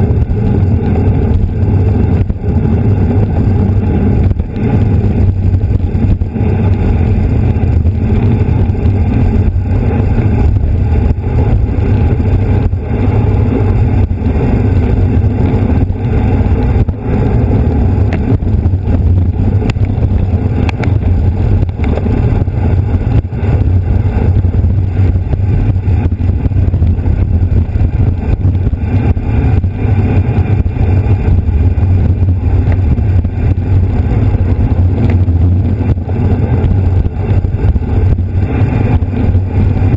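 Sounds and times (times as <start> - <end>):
tyre and road noise: 0.0 - 39.9
wind buffeting microphone: 0.0 - 39.9.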